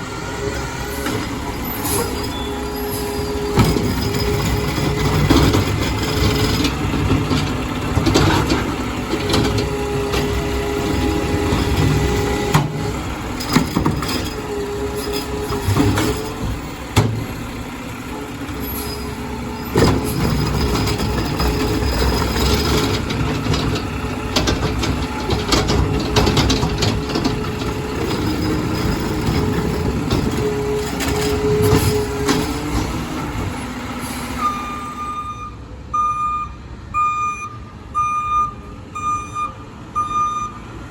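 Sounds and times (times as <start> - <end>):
garbage truck diesel engine: 0.0 - 40.9
metallic clanks and knocks: 3.0 - 17.5, 19.7 - 33.6.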